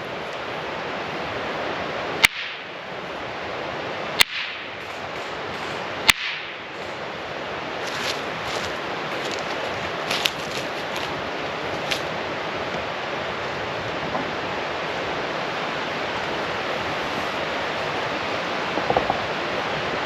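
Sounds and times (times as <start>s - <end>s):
steady background noise: 0.0s - 20.0s
rocks clacking together: 4.2s - 12.1s.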